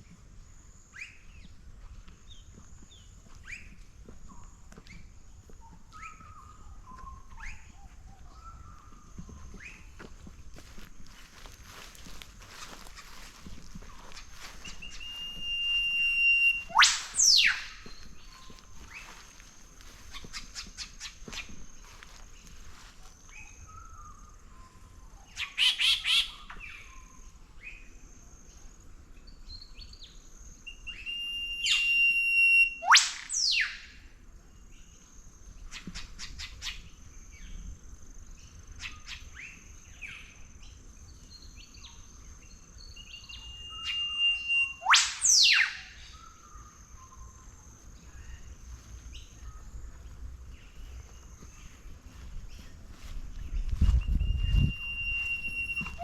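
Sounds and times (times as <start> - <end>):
birds chirping: 2.2 - 24.4, 38.4 - 56.0
bird whistle ending in whip-crack: 15.8 - 17.9, 30.9 - 34.0, 43.7 - 46.4, 54.5 - 56.0.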